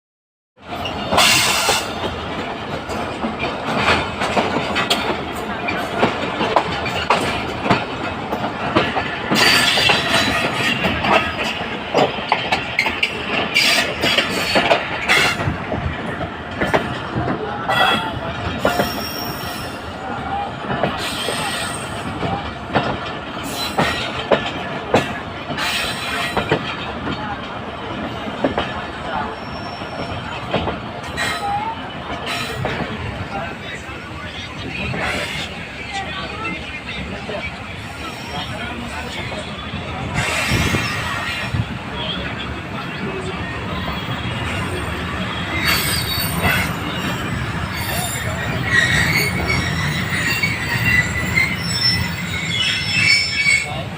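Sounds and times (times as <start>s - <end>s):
train wheels clattering over rail joints: 0.7s - 19.8s, 20.6s - 33.7s
high wheel squeals: 17.8s - 19.9s, 29.2s - 30.3s, 43.7s - 53.8s.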